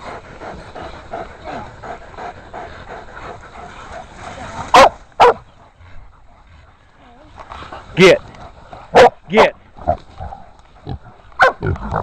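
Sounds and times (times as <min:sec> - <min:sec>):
dogs barking: 0:04.7 - 0:05.6, 0:08.8 - 0:09.4, 0:11.3 - 0:11.8.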